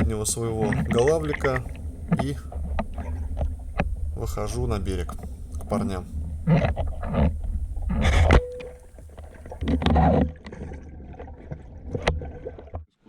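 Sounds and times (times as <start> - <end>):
steady low rumble: 0.0 - 9.9
water sloshing and splashing: 0.0 - 13.0.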